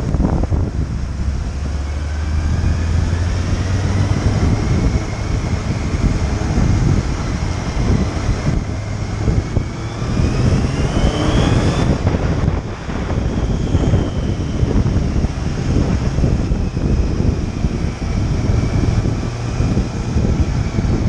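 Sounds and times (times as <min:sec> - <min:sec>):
motorcycle engine running: 0:00.0 - 0:21.0
rising whine: 0:00.0 - 0:21.0
wind noise: 0:00.0 - 0:21.0.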